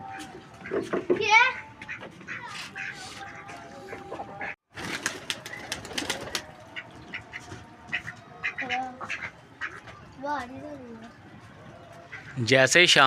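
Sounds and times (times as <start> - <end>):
duck quacks: 1.5 - 3.5, 6.8 - 9.8.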